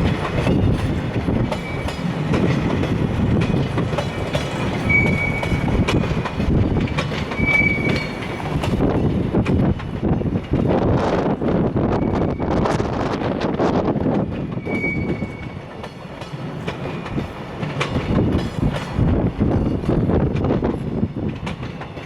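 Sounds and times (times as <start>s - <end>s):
wheels clacking over rail joints: 0.0s - 10.8s, 13.3s - 22.0s
freight train rumbling past: 0.0s - 22.0s
high-pitched wheel squeals: 4.8s - 5.8s, 7.4s - 8.2s, 14.6s - 15.6s.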